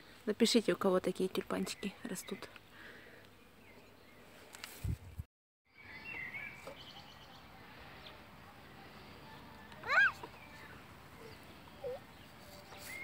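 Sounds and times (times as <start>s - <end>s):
faint garden ambience: 0.0s - 13.0s
bird chirping: 5.7s - 13.0s.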